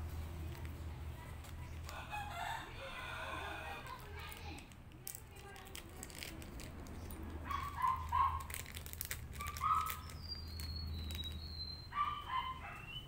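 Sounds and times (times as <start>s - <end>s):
plastic bag crinkling: 0.2s - 2.2s, 3.7s - 11.8s
bird calls: 9.4s - 13.0s.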